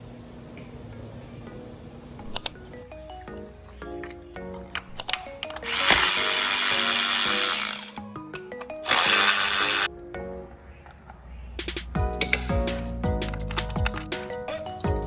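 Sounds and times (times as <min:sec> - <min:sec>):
melodic background music: 0:01.5 - 0:15.0
hissing power tool: 0:05.7 - 0:08.0, 0:08.8 - 0:09.9.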